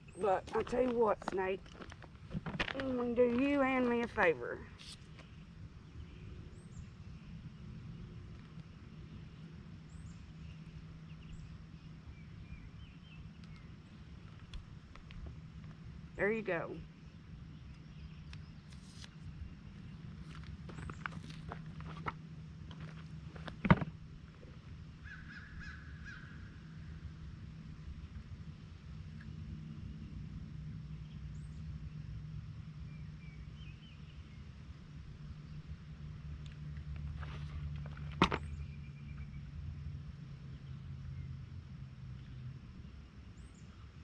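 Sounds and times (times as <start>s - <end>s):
steady low hum: 0.0s - 44.0s
bird calling: 24.4s - 26.7s.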